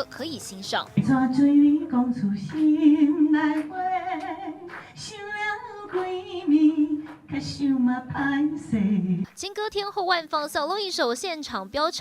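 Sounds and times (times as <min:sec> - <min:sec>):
woman singing slow melody: 0:01.0 - 0:09.3.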